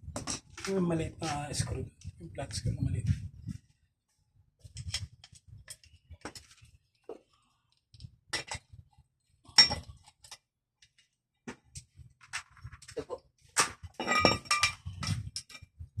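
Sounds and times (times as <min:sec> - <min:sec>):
metal tools clinking: 0:14.0 - 0:15.6.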